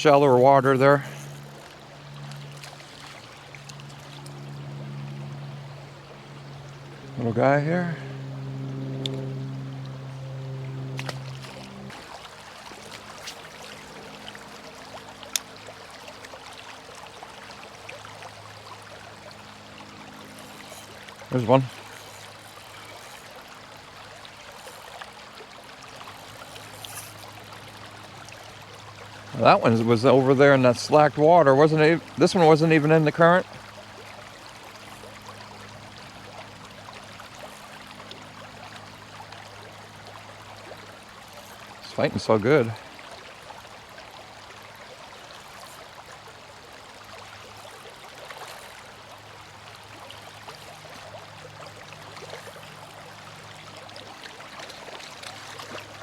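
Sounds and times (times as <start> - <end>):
creek water running: 0.0 - 56.0.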